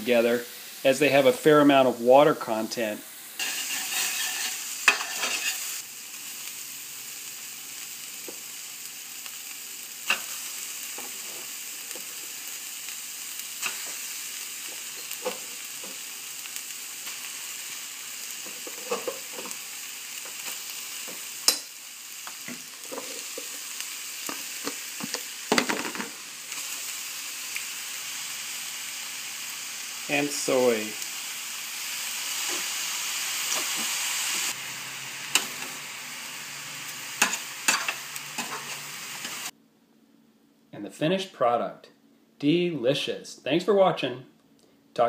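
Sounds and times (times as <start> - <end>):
vegetables sizzling in a frying pan: 0.0 - 39.6.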